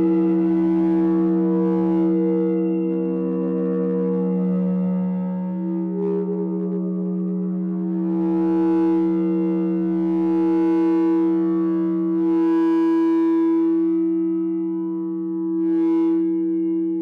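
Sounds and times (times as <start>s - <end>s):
mixer feedback drone: 0.0s - 17.0s.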